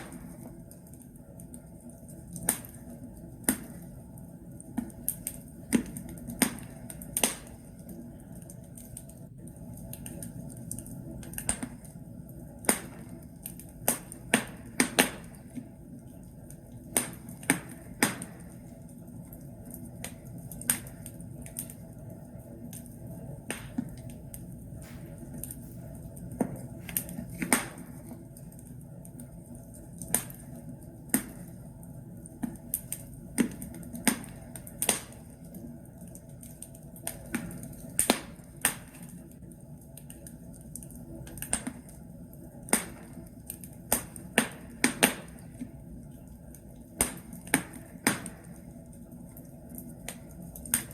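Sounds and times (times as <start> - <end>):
fire crackling and popping: 0.0 - 50.9
low rumble of flames: 0.0 - 50.9.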